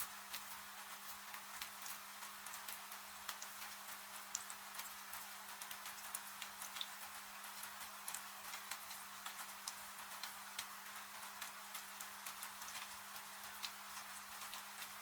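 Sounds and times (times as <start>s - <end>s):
rain falling: 0.0s - 15.0s
wood fire crackling and popping: 0.0s - 15.0s.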